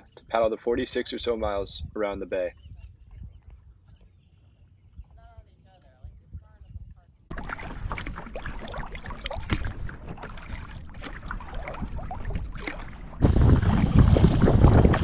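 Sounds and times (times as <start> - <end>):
wind buffeting microphone: 1.0 - 15.0
water splashing from kayak paddling: 7.3 - 15.0.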